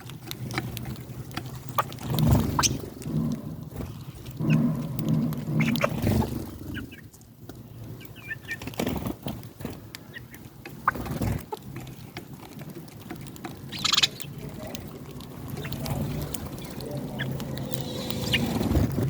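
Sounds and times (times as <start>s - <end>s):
birds pecking at feed: 0.0s - 19.0s
hens clucking: 1.7s - 7.1s, 10.1s - 12.9s, 13.6s - 19.0s
sparrow chirps: 13.7s - 14.4s, 16.5s - 18.6s.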